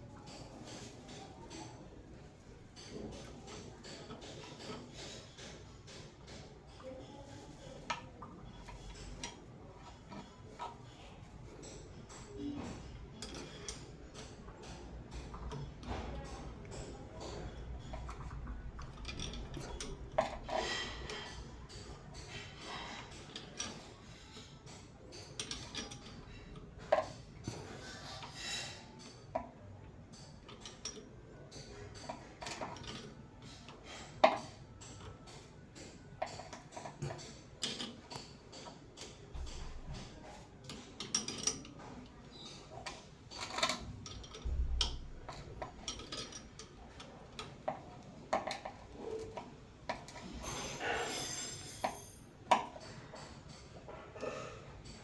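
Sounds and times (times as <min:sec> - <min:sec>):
metal parts and tools clinking: 0:11.5 - 0:29.5, 0:30.1 - 0:55.0.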